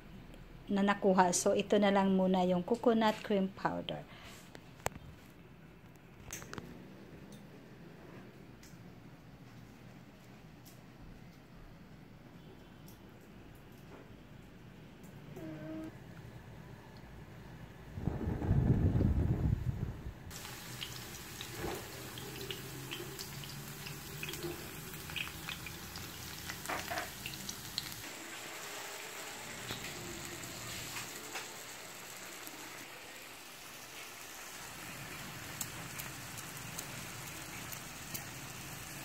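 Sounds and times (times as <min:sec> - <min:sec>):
loud low rumble: 0:17.9 - 0:20.3
vegetables sizzling in hot oil: 0:20.3 - 0:39.0.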